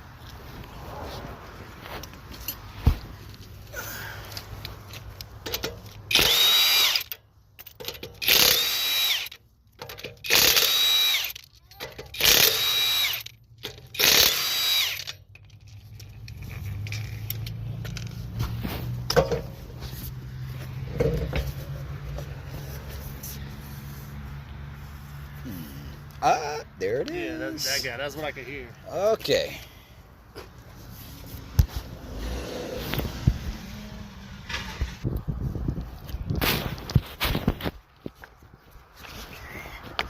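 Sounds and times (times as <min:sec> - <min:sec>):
power tool whine: 0:06.1 - 0:07.1, 0:08.2 - 0:09.4, 0:10.3 - 0:11.4, 0:12.2 - 0:13.3, 0:14.0 - 0:15.1.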